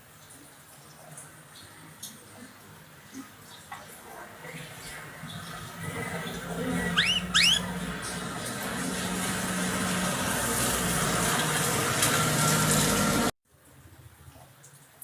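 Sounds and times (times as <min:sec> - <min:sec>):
bird whistled notes: 0:06.9 - 0:07.7.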